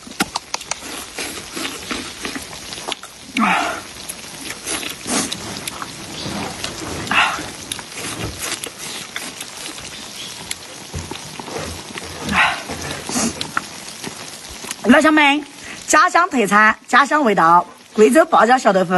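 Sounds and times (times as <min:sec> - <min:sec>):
tofu sizzling on a grill: 0:00.0 - 0:18.9.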